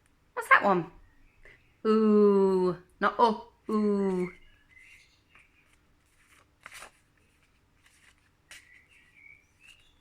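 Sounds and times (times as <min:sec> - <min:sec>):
faint rustles of flashcards: 0:03.6 - 0:10.0.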